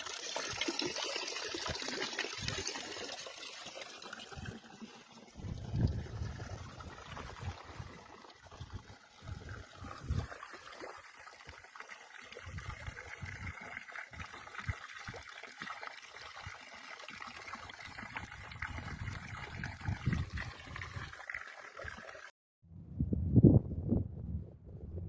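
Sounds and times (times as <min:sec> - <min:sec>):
stream water trickling and gurgling: 0:00.0 - 0:22.3.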